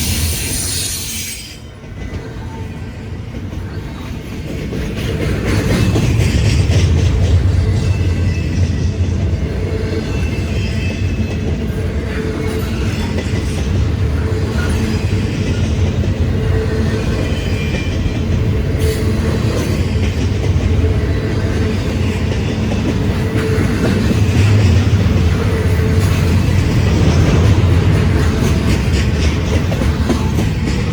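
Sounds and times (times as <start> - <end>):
freight train rumble: 0.0 - 30.9
wheels clacking over rail joints: 10.2 - 30.9.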